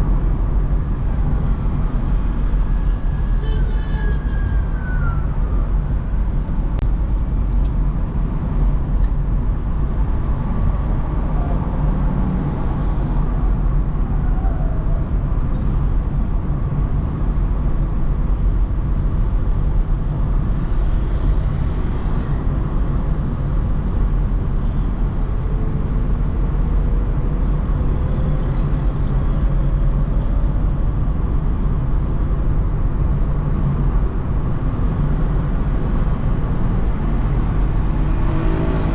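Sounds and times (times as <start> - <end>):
car driving in traffic: 0.0 - 38.9.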